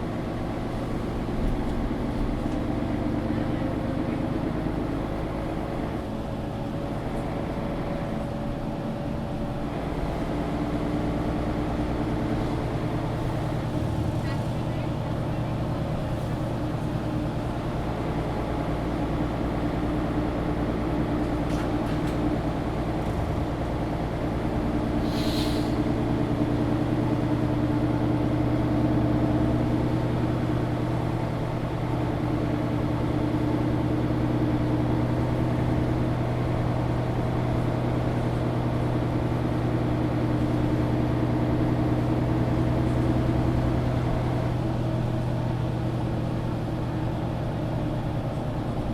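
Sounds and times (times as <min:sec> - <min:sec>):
bus diesel engine running: 0:00.0 - 0:48.9
compressed air hiss: 0:25.0 - 0:25.8.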